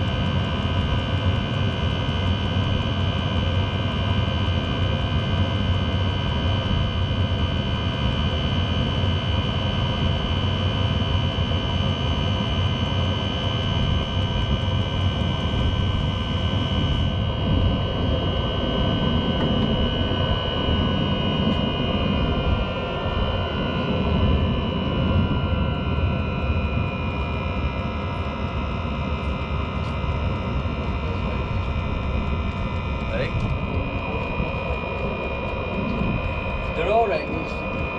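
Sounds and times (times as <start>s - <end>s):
air heater roaring: 0.0s - 37.9s
high motor whine: 0.0s - 37.9s.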